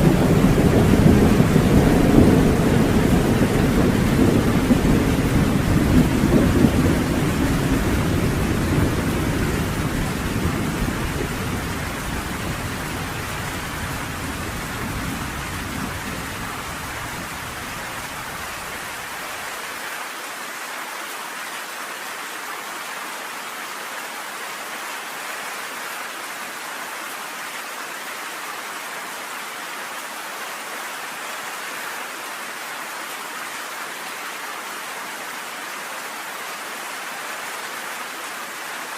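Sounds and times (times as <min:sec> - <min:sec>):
thunder rolling: 0:00.0 - 0:17.7
rain falling: 0:00.0 - 0:38.9.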